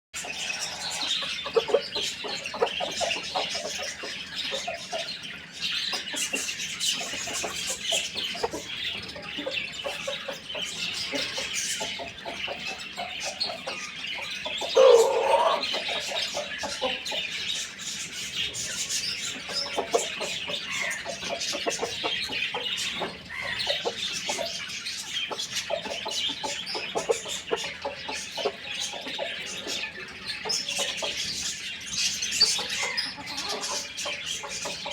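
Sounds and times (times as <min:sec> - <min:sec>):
chickens clucking: 0:00.2 - 0:34.9
high chirping: 0:00.2 - 0:34.9.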